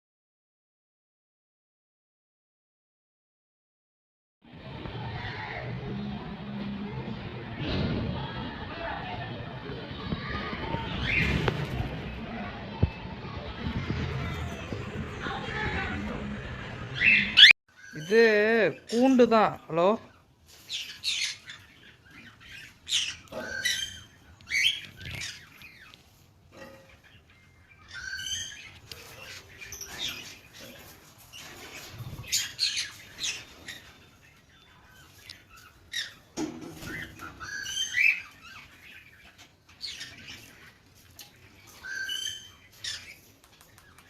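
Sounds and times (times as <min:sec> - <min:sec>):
parrots squawking: 0:16.9 - 0:18.2, 0:20.7 - 0:25.9, 0:36.9 - 0:40.7, 0:41.6 - 0:43.2.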